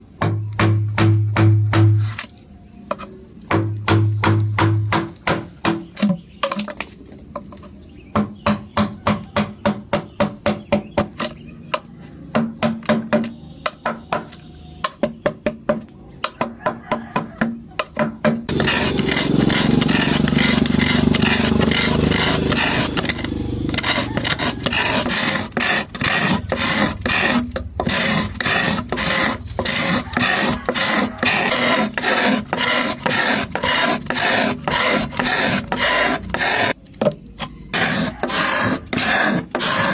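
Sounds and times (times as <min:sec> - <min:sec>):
scraping wood: 0:18.2 - 0:39.9
filing strokes on wood: 0:18.5 - 0:36.8, 0:37.7 - 0:39.9
hand tool strokes on wood: 0:18.5 - 0:36.8, 0:37.7 - 0:39.9.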